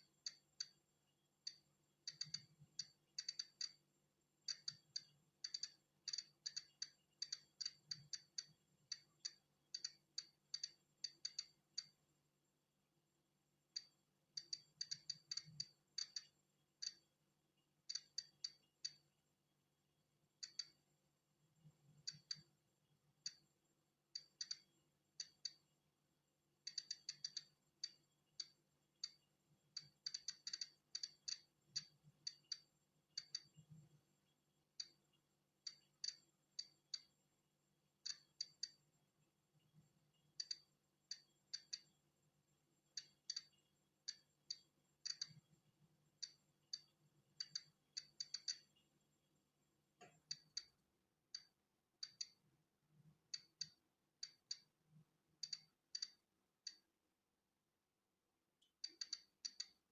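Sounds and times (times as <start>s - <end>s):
geiger counter clicking: 0.0s - 0.8s, 1.4s - 12.0s, 13.7s - 17.1s, 17.9s - 19.1s, 20.4s - 20.8s, 21.9s - 22.6s, 23.2s - 23.5s, 24.1s - 25.7s, 26.6s - 33.8s, 34.8s - 37.1s, 38.0s - 38.8s, 40.4s - 42.0s, 42.9s - 45.5s, 46.2s - 48.8s, 50.0s - 50.8s, 51.4s - 52.4s, 53.2s - 54.8s, 55.4s - 56.9s, 58.8s - 59.9s.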